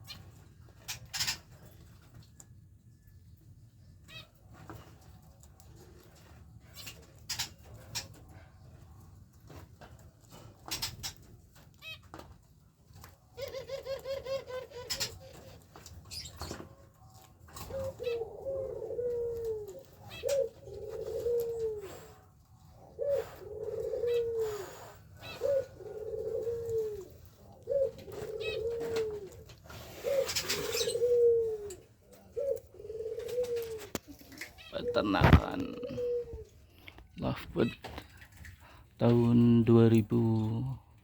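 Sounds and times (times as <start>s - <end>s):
dove cooing: 13.0s - 40.8s.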